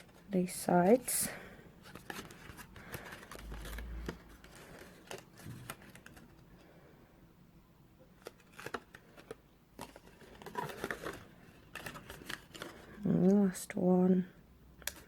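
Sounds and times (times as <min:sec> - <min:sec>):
paper clicks and rustles: 0:01.8 - 0:06.4, 0:08.2 - 0:13.3.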